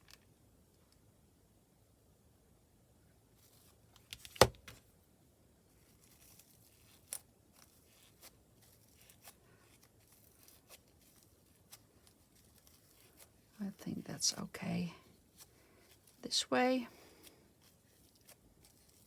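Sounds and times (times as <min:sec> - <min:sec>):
faint rustling: 0:05.7 - 0:19.0.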